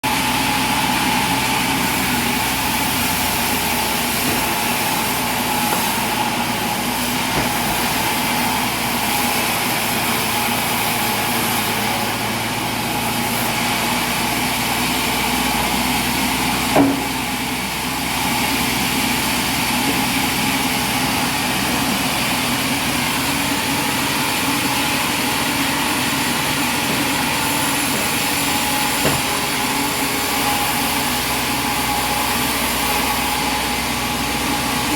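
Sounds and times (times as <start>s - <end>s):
sawmill machinery humming: 0.0s - 34.9s
sharp knock: 16.8s - 17.1s.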